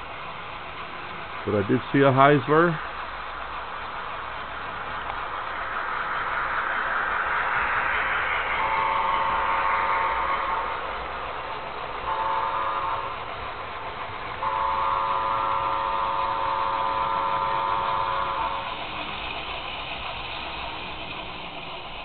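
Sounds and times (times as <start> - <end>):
model train running noise: 0.0 - 22.0
model train horn: 8.6 - 10.8, 12.0 - 13.3, 14.4 - 19.0.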